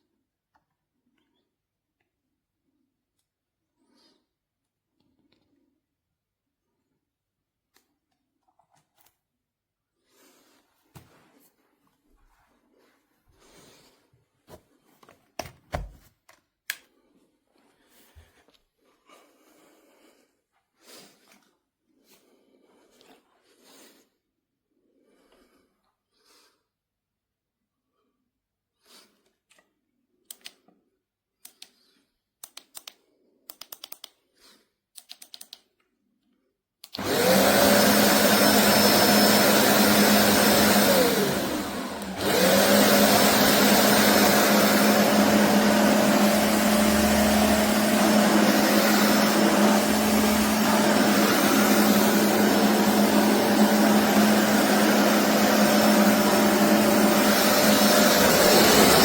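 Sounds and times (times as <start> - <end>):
carpet cleaner motor whining: 37.0 - 59.0.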